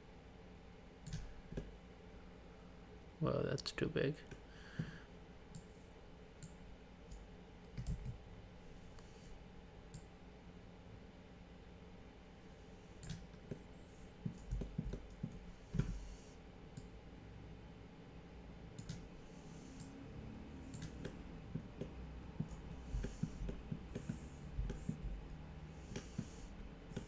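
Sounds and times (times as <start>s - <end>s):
mouse and keyboard clicks: 20.7s - 21.2s.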